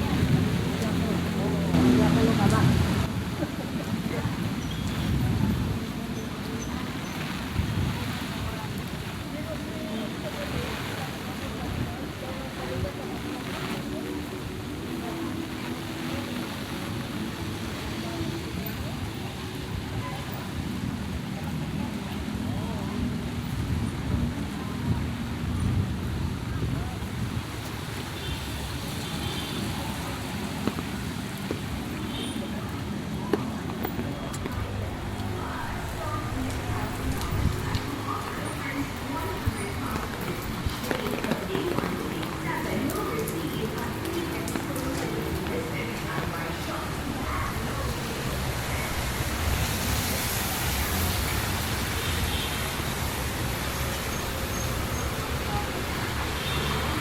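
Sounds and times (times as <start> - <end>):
heavy rain pouring: 0.0 - 57.0
street traffic noise: 0.0 - 57.0.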